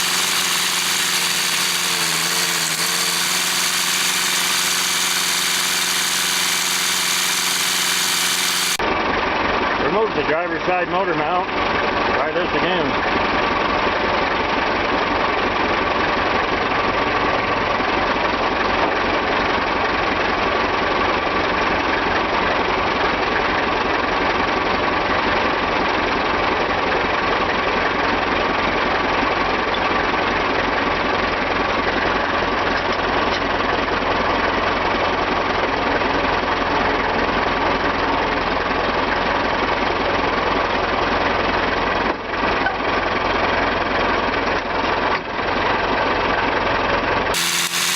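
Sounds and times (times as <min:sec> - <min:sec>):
machine running: 0:00.0 - 0:08.8, 0:47.4 - 0:47.9.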